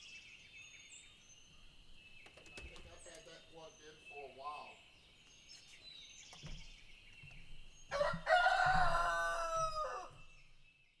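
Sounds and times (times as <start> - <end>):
faint high birdsong: 0.0 - 9.2
rooster crowing: 7.9 - 10.2.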